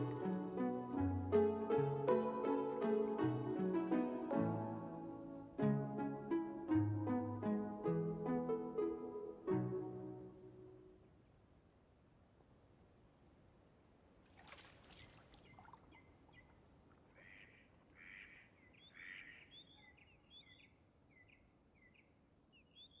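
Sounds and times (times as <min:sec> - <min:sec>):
lakeside ambience: 0:00.0 - 0:11.5, 0:12.4 - 0:22.5
small birds chirping: 0:15.0 - 0:23.0.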